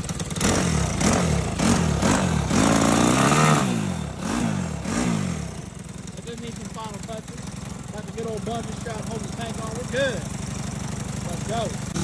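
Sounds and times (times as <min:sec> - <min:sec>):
engine revved in throttle blips: 0:00.0 - 0:07.3.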